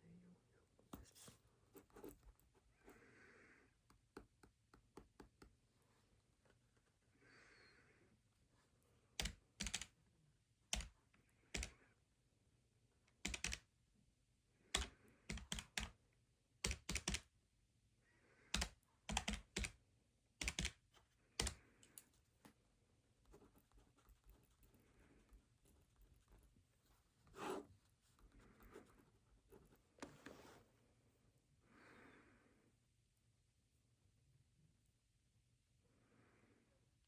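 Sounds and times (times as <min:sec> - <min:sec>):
keyboard keys clicking: 0:09.2 - 0:09.9, 0:13.2 - 0:13.6, 0:14.8 - 0:15.9, 0:16.7 - 0:17.2, 0:18.6 - 0:19.8, 0:20.4 - 0:20.8
soft rustles: 0:23.4 - 0:31.0.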